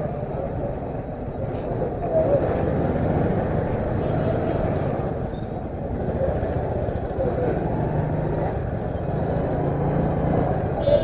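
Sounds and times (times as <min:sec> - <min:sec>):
road noise: 0:00.0 - 0:11.0
motorcycle engine: 0:02.3 - 0:11.0.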